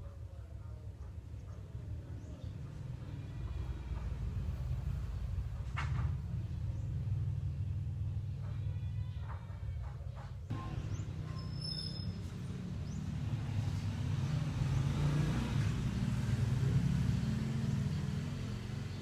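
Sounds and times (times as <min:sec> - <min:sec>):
motor vehicle rumble: 0:10.4 - 0:19.0.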